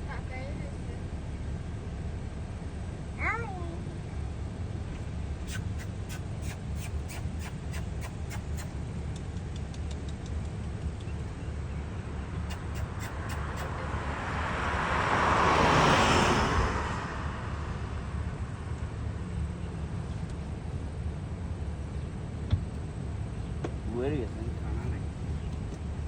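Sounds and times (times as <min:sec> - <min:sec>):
traffic rumble: 0:00.0 - 0:26.0
quick sharp clicks: 0:05.5 - 0:11.1
vehicle passing close by: 0:10.7 - 0:20.8.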